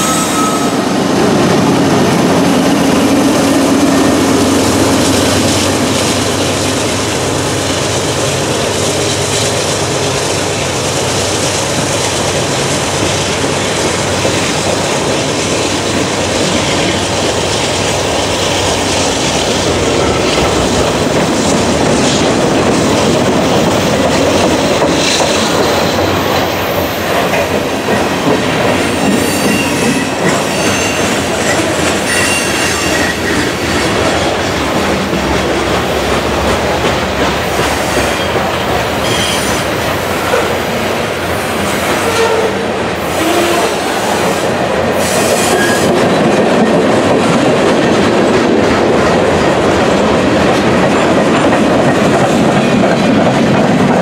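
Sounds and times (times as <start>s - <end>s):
high wheel squeals: 0.0s - 0.9s, 28.9s - 33.5s, 39.0s - 39.6s
freight cars rumbling on rails: 0.0s - 54.0s
clickety-clack over rail joints: 1.4s - 54.0s.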